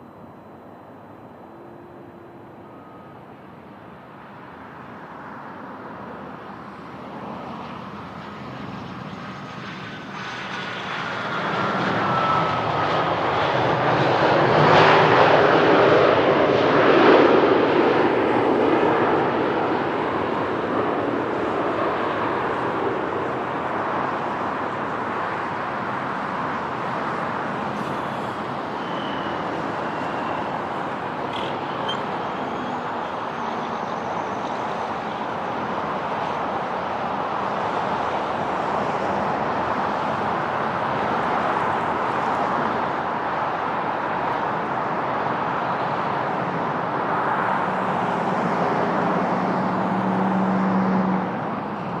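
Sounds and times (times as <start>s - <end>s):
faint high whine: 0.0s - 13.3s, 26.4s - 36.4s
jet engine rushing: 6.6s - 52.0s.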